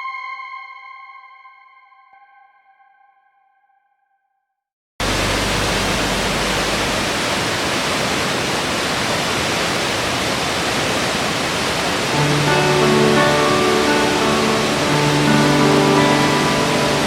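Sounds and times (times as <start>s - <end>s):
waterfall rushing water: 5.0s - 17.0s.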